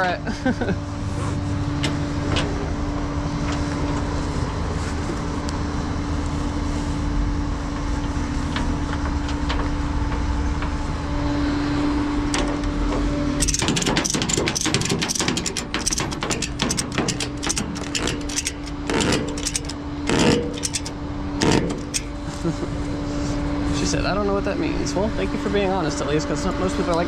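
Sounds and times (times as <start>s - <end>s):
vehicle engine humming: 0.7s - 27.0s
rapid clicks: 13.4s - 22.2s.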